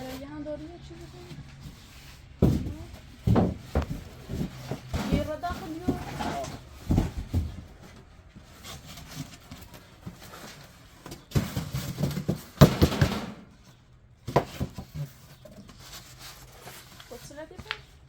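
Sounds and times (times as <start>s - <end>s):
knocks and clattering: 1.5s - 13.7s.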